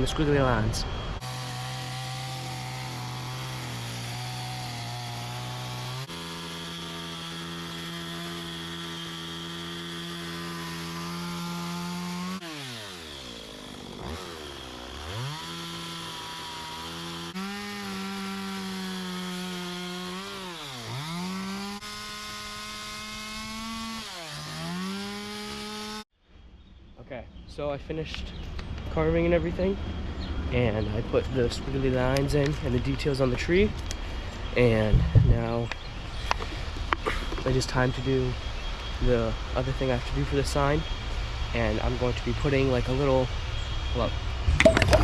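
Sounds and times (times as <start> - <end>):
chainsaw cutting wood: 1.2 - 26.1.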